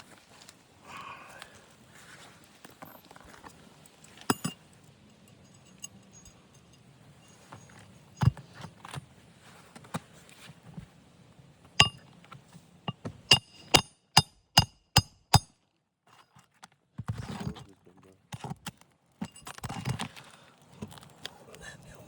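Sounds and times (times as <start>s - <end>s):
hammer striking nails: 11.8s - 12.0s, 12.9s - 15.5s.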